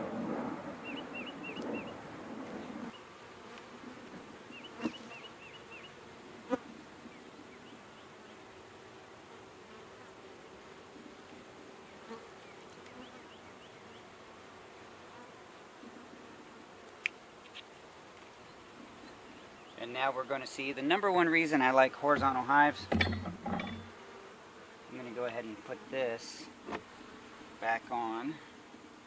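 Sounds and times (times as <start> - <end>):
birds chirping: 0.0 - 3.2, 4.4 - 6.1, 6.7 - 9.0, 11.8 - 14.2, 17.4 - 24.0
honeybees buzzing: 0.0 - 29.0
rustling: 25.0 - 28.0.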